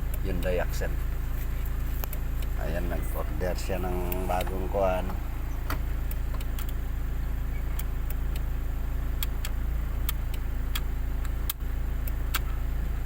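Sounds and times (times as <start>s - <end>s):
diesel engine idling: 0.0s - 13.0s
sharp clicks: 4.1s - 6.8s.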